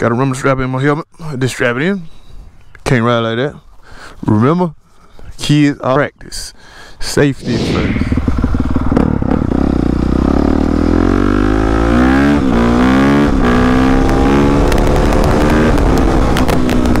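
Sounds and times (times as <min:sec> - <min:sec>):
dirt bike engine accelerating: 0:07.5 - 0:17.0.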